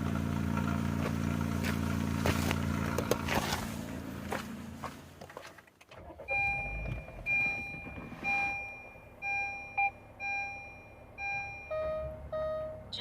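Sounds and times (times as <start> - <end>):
car electronic chime beeping: 6.2 - 13.0.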